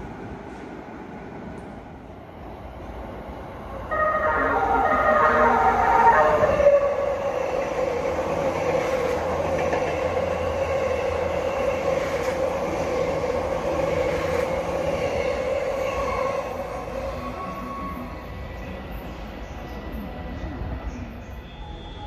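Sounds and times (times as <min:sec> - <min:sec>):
electric train passing: 0:00.0 - 0:22.0
train horn blast: 0:03.9 - 0:07.1.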